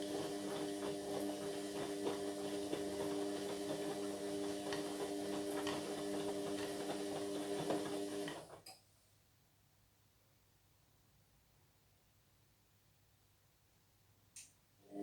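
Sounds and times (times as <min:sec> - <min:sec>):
washing machine humming: 0:00.0 - 0:08.6.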